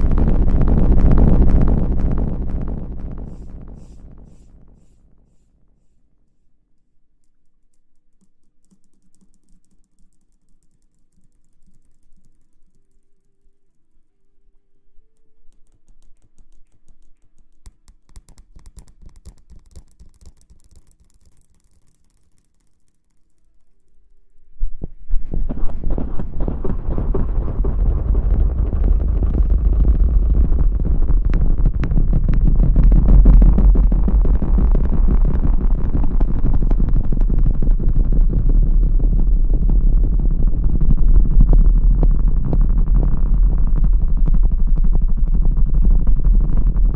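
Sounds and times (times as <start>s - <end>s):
crackling and tapping close up: 0.0s - 5.6s, 6.8s - 14.1s, 15.0s - 46.9s.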